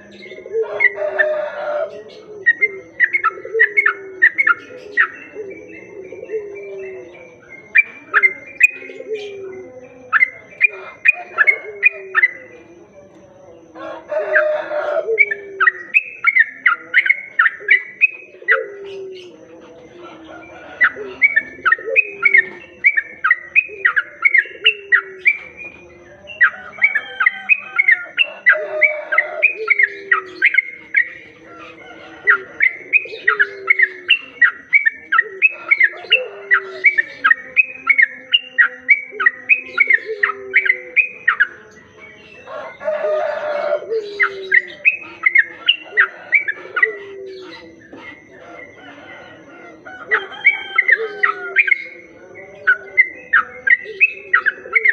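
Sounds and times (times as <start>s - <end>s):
bird singing bubbly chirps: 15.2s - 19.2s, 20.8s - 42.5s, 50.2s - 54.9s.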